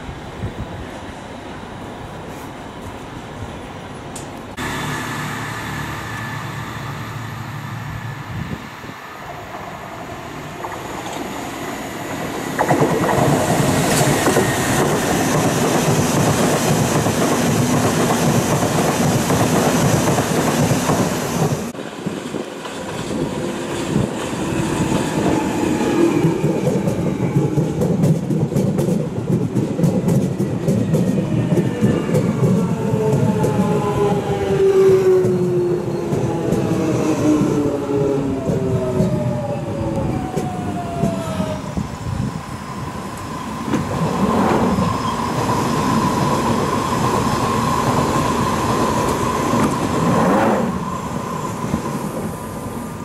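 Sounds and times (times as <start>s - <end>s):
train wheel and rail rumble: 0.0s - 53.0s
falling whine: 4.6s - 9.4s.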